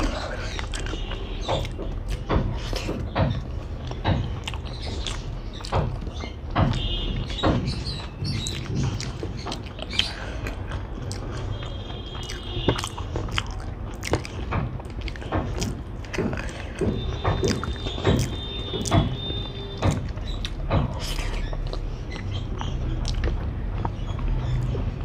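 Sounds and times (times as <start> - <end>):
wet chewing and lip smacks: 3.8 - 5.7, 8.4 - 11.6, 12.2 - 16.8, 17.4 - 19.2, 19.8 - 24.8.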